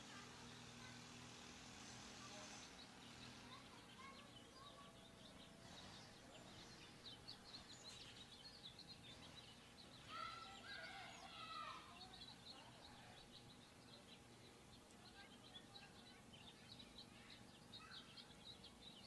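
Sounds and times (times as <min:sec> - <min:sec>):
harsh bird call: 0:10.0 - 0:13.0.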